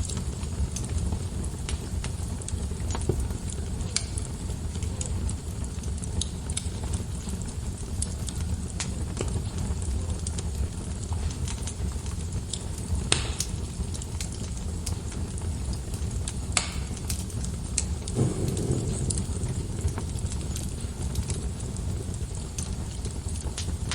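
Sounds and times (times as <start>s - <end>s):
wood fire crackling: 16.3s - 23.9s
loud fire pops: 18.0s - 23.9s.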